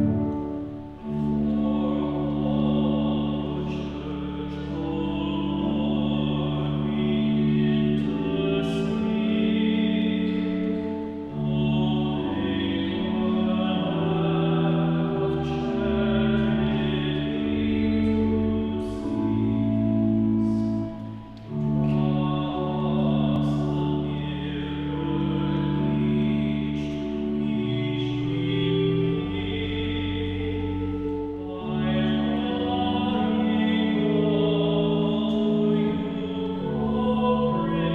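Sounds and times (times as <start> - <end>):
held accompanying notes: 0.0 - 37.9
voices singing a hymn: 0.0 - 37.9.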